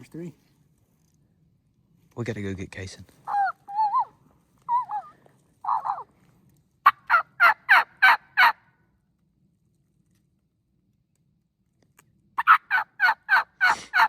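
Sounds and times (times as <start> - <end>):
turkey gobbling: 3.3 - 6.1, 6.8 - 8.6, 12.4 - 14.0.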